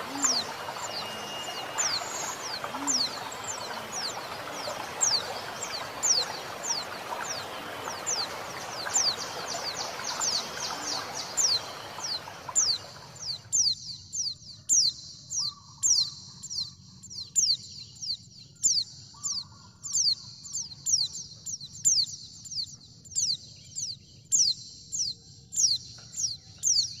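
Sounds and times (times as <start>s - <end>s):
bird high falling chirps: 0.0s - 13.2s
flowing water rushing: 0.0s - 13.5s.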